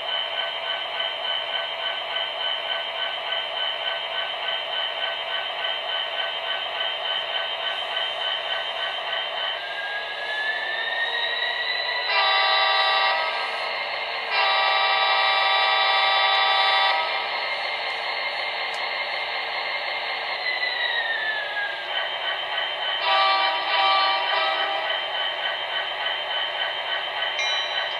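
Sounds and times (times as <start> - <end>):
locomotive horn blasts: 12.1 - 13.4, 14.3 - 17.2, 23.0 - 24.9.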